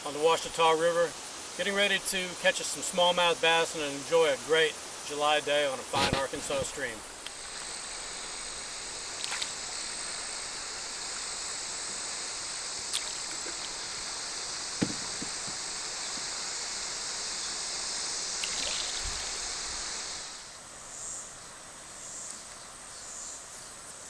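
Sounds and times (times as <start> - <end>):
flowing stream water: 0.0 - 20.7
high-pitched insect drone: 0.2 - 21.3
sharp knock: 14.8 - 15.6.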